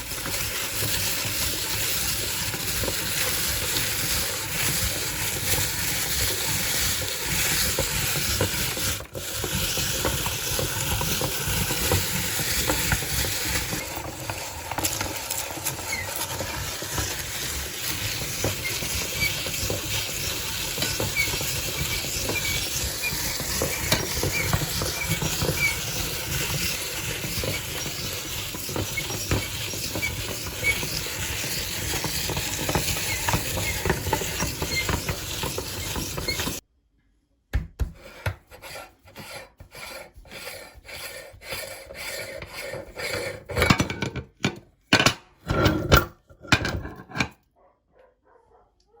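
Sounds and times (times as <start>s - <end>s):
potato chips crunching in meat grinder: 0.0s - 36.6s.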